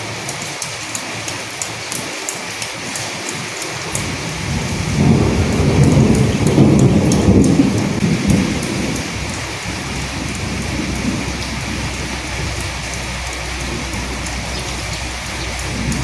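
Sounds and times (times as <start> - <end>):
raindrops ticking: 0.0 - 16.0
steady rain: 0.0 - 16.0
low rumble of thunder: 3.9 - 16.0.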